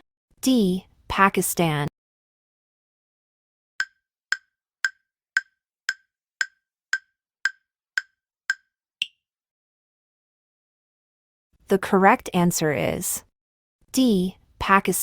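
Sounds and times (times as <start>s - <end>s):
wood block timer ticks: 3.8s - 9.2s.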